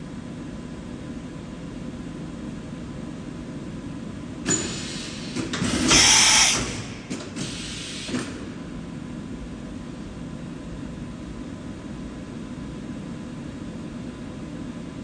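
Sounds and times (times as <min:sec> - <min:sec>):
air hiss: 0:04.5 - 0:08.4.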